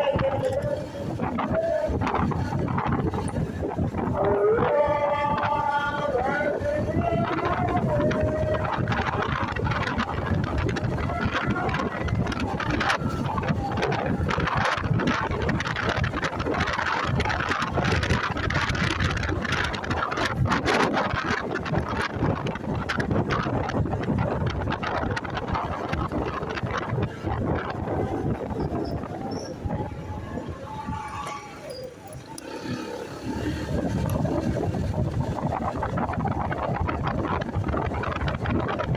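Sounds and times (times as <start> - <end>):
motorcycle engine and road noise: 0.0 - 38.9
wind buffeting microphone: 0.0 - 38.9.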